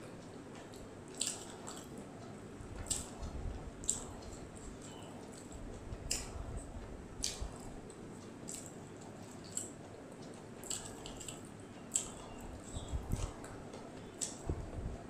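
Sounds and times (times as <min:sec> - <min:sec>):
person chewing squishily: 0:00.7 - 0:02.0, 0:02.8 - 0:09.8, 0:10.6 - 0:13.4.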